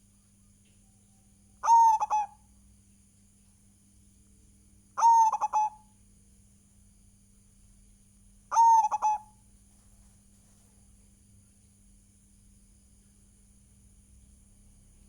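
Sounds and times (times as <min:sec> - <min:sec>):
faint steady hum: 0:00.0 - 0:15.0
dove cooing: 0:01.6 - 0:02.4, 0:05.0 - 0:05.8, 0:08.5 - 0:09.4.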